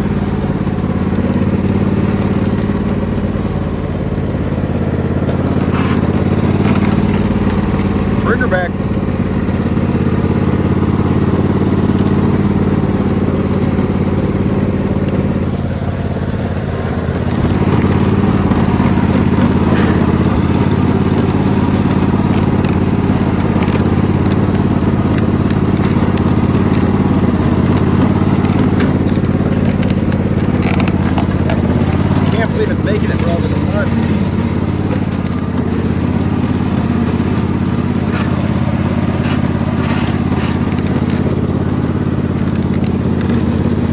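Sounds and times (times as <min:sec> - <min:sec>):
lawn mower engine running: 0:00.0 - 0:43.9.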